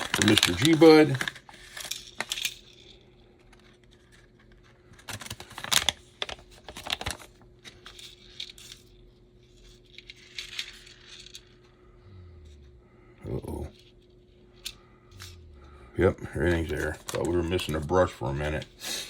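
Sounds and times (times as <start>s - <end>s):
plastic package crinkling: 0.0s - 2.4s, 3.8s - 7.4s, 16.4s - 18.2s
small parts clicking and rattling: 0.0s - 11.8s
faint steady hum: 0.0s - 19.0s.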